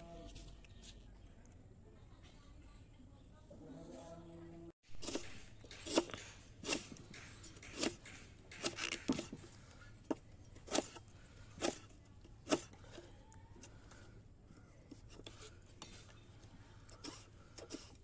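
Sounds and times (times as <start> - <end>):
cleaver cutting strokes: 5.0 - 9.5.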